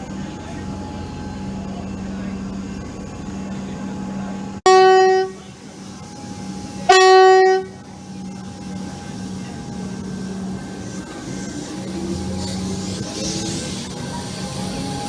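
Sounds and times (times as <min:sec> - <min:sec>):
steady low hum: 0:00.0 - 0:13.2
train horn blasts: 0:04.6 - 0:08.8.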